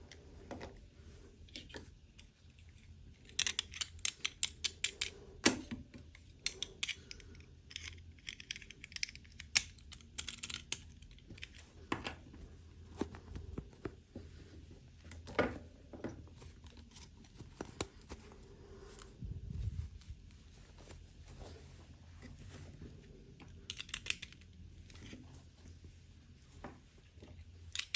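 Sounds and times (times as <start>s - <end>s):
plastic toy pieces clicking: 3.2s - 5.1s, 6.4s - 11.6s, 23.7s - 24.5s.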